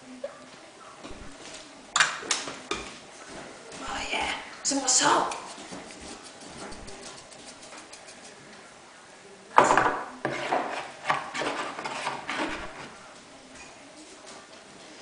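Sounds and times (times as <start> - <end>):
spoon scraping against a bowl: 5.2 - 8.4, 10.3 - 12.9.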